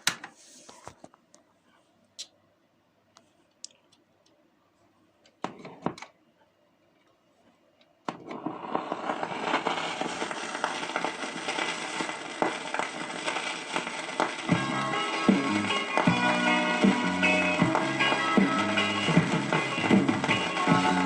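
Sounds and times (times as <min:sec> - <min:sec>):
vinyl surface hiss with crackle: 0:00.0 - 0:21.0.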